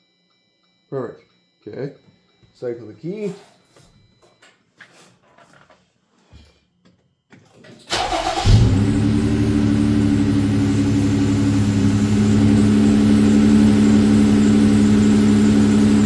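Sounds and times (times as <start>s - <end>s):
car engine starting and idling: 7.9s - 16.0s.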